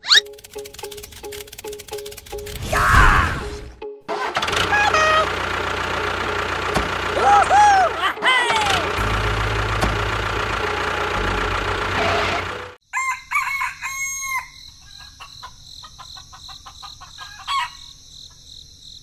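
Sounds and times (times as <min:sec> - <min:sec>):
engine running: 0:00.2 - 0:02.6, 0:04.2 - 0:12.8
rooster crowing: 0:12.9 - 0:15.2
crickets chirping: 0:12.9 - 0:19.0.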